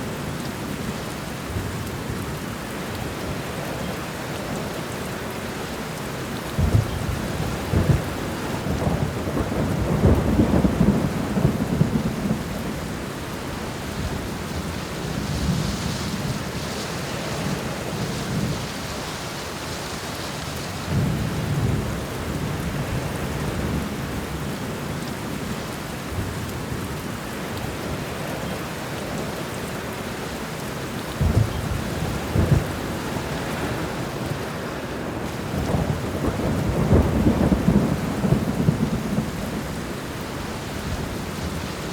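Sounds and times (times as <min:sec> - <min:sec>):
steady rain falling: 0:00.0 - 0:41.9
thunder rumbling: 0:06.5 - 0:19.0, 0:31.1 - 0:41.9.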